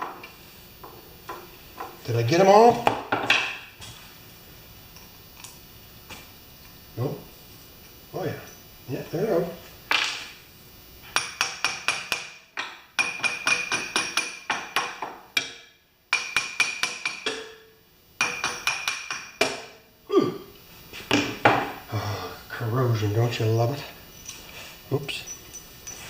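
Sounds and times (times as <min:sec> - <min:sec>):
hammer tapping on metal: 0:11.1 - 0:17.6, 0:18.2 - 0:19.7.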